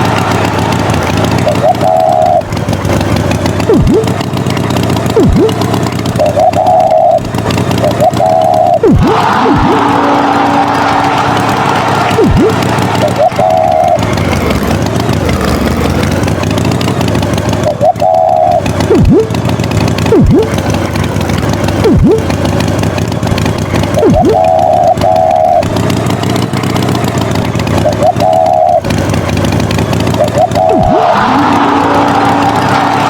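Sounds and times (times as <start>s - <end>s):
cartoon tractor engine: 0.0s - 33.0s
short wavering toots: 0.0s - 33.0s.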